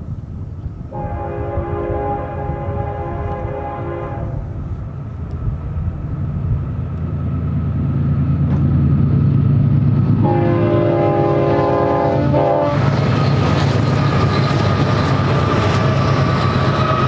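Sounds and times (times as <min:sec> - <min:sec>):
diesel engine rumble: 0:00.0 - 0:17.0
locomotive air horn: 0:00.9 - 0:04.6, 0:10.2 - 0:13.0.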